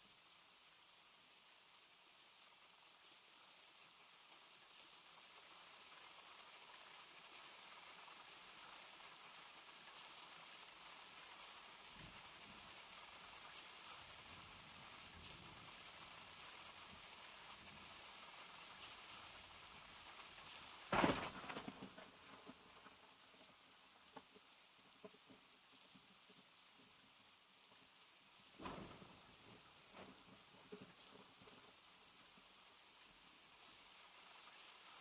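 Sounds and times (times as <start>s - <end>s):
rain falling: 0.0s - 35.0s
loud crack: 20.9s - 22.0s.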